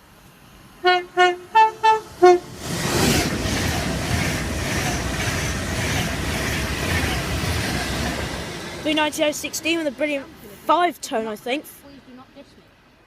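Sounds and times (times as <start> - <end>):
train passing rush: 0.0 - 13.0
train horn notes: 0.8 - 2.6.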